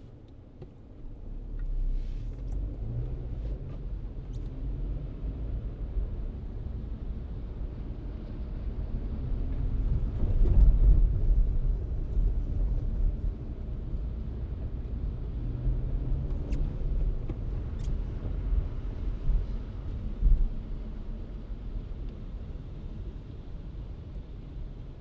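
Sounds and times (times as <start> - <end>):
car driving rumble: 0.0 - 21.9
tyre and road noise: 9.3 - 21.2.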